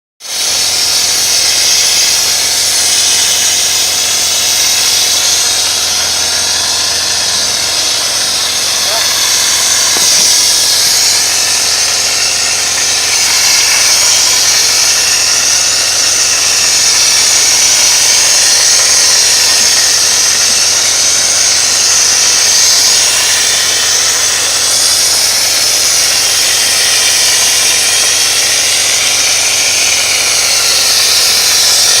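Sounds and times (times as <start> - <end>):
mortar pump machine running: 0.2 - 32.0
spray nozzle hissing: 0.2 - 32.0.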